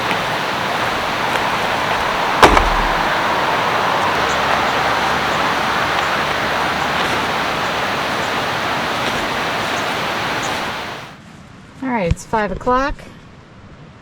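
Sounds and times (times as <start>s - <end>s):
steady road traffic: 0.0s - 11.2s.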